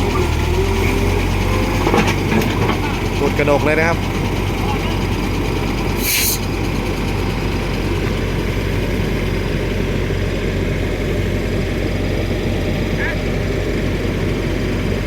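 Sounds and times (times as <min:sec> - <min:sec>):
excavator diesel engine running: 0:00.0 - 0:15.0
hydraulic hiss: 0:06.0 - 0:06.5.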